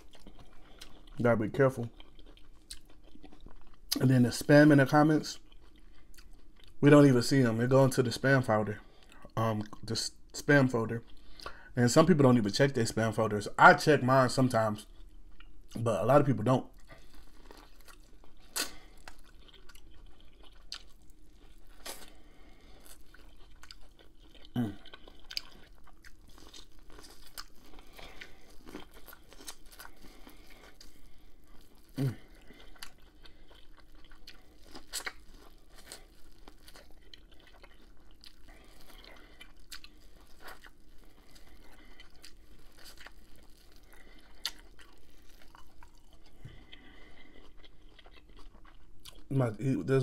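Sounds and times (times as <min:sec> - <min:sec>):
crunchy chewing: 0:00.0 - 0:04.1, 0:16.7 - 0:49.3.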